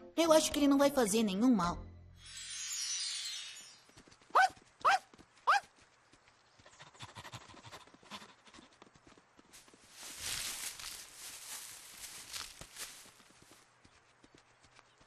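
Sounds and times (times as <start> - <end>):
light footsteps patter: 3.9 - 15.0.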